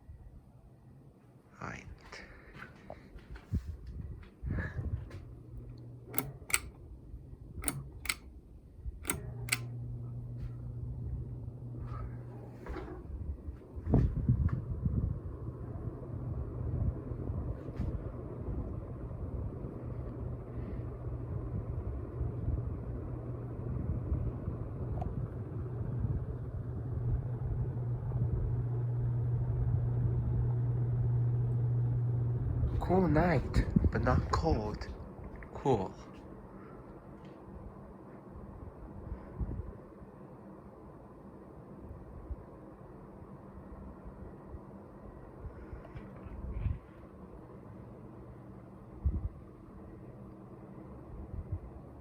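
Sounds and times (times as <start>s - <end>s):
fan motor humming: 1.6s - 52.0s
pull-chain switch clicks: 6.1s - 6.8s, 7.5s - 8.3s, 9.0s - 9.7s.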